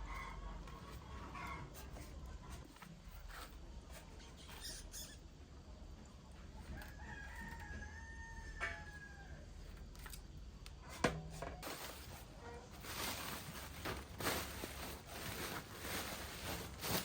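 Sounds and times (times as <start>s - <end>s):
rooster crowing: 6.6s - 9.5s.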